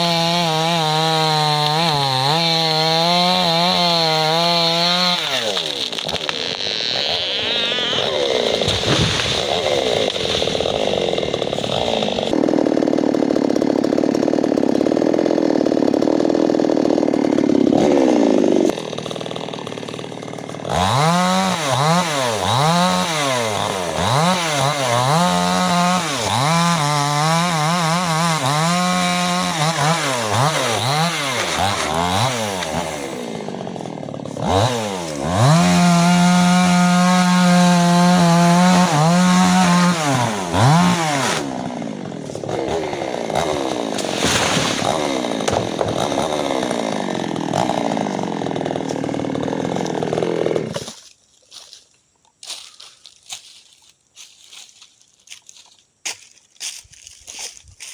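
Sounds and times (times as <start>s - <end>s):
chainsaw revving: 0.0s - 51.0s.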